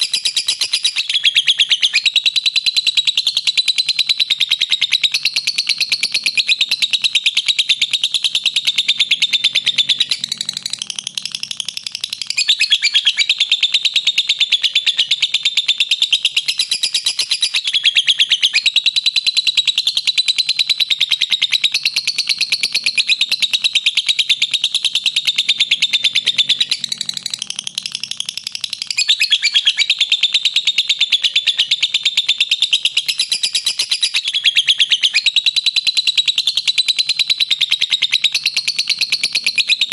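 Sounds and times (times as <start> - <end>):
lovebird chattering trill: 0.0 - 39.9.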